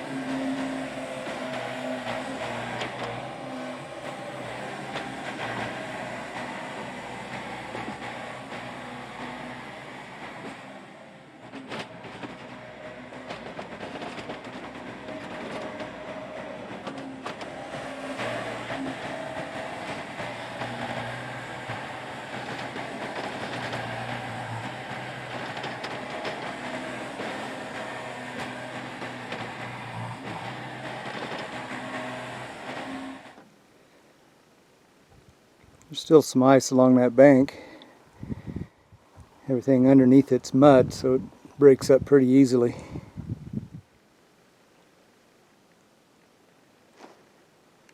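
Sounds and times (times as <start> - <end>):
excavator diesel engine: 0.0 - 33.5, 35.9 - 43.7
rattling clatter: 11.4 - 33.4.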